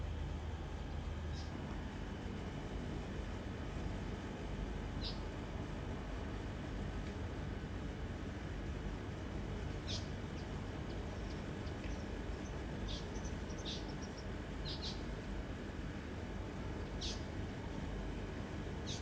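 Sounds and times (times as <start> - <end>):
bird chirping: 9.8 - 10.6, 11.2 - 15.0.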